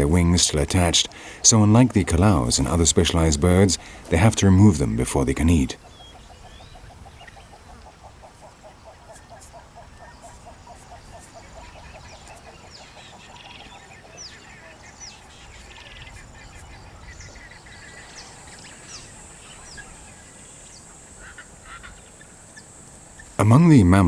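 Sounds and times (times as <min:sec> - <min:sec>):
low repeated bird notes: 0:00.0 - 0:07.8
steady high hiss: 0:00.0 - 0:07.8, 0:17.8 - 0:24.0
high falling bird chirps: 0:01.2 - 0:07.8.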